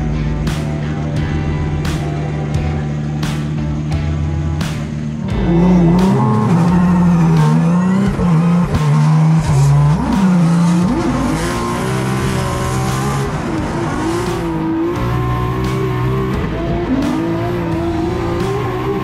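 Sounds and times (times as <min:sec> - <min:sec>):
car engine running hard: 0:00.0 - 0:19.0
tyre noise: 0:04.6 - 0:19.0.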